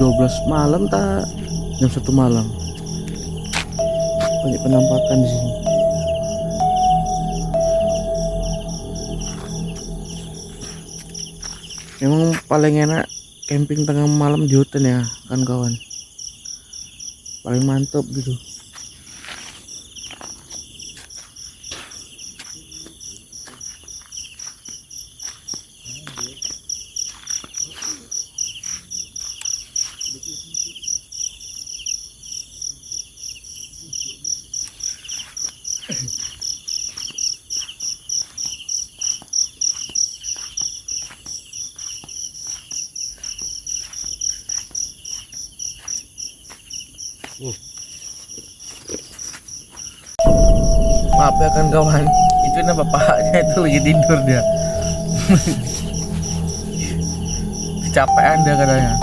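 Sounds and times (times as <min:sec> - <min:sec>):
cricket tick-like chirp: 0:00.0 - 0:12.3
insects pulsing high trill: 0:00.0 - 0:12.3.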